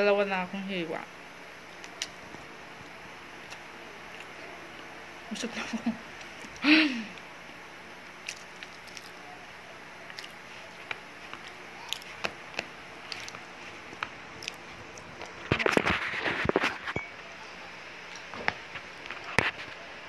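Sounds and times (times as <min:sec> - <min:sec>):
person biting and chewing: 0:08.1 - 0:09.3, 0:10.0 - 0:16.9.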